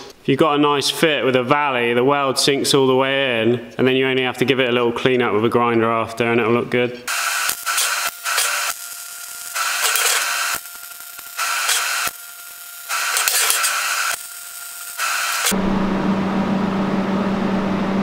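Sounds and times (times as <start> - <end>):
welding arc crackling: 7.1 - 15.6.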